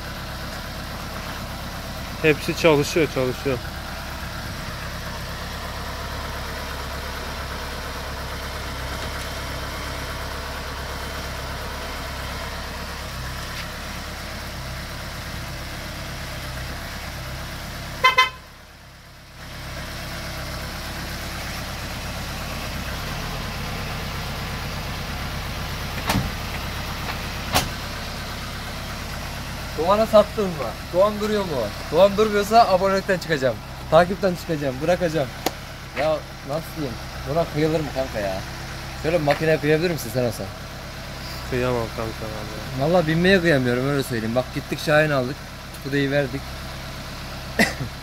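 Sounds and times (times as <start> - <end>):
car engine idling: 0.0 - 48.0
short car horn toot: 18.0 - 18.5.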